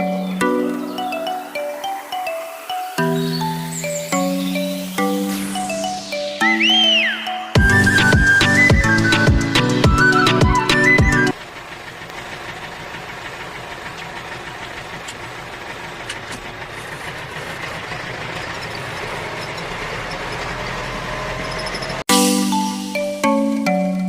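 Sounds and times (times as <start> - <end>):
small motor running rattly: 11.4 - 22.0.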